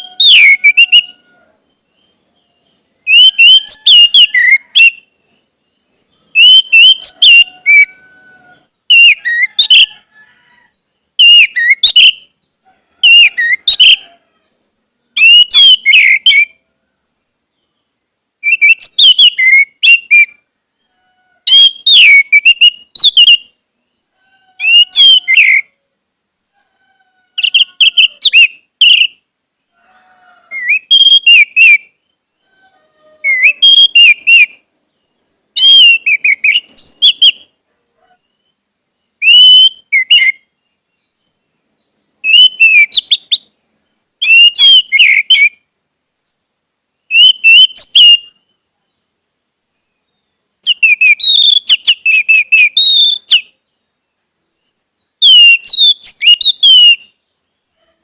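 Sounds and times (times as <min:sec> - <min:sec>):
thrush singing whistled notes: 0:00.0 - 0:10.1, 0:11.2 - 0:14.1, 0:15.2 - 0:16.6, 0:17.5 - 0:20.9, 0:21.5 - 0:24.0, 0:27.4 - 0:29.2, 0:30.5 - 0:32.3, 0:33.2 - 0:37.6, 0:38.3 - 0:41.4, 0:42.2 - 0:43.6, 0:44.2 - 0:45.6, 0:47.0 - 0:48.6, 0:49.8 - 0:53.6, 0:54.7 - 0:57.6.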